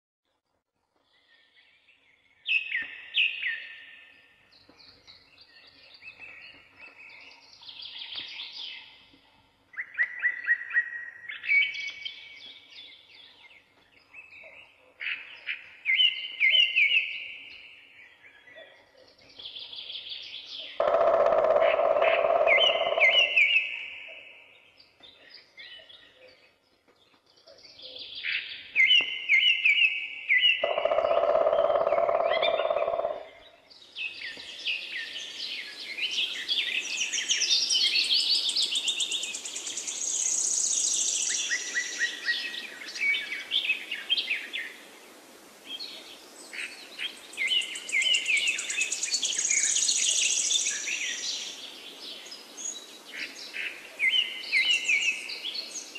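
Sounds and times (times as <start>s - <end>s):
songbirds chirping and trilling: 0.8s - 55.9s.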